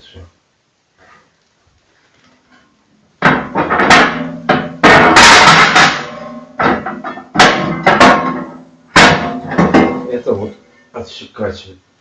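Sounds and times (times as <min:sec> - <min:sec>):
cast iron parts clanking: 0:03.2 - 0:10.3.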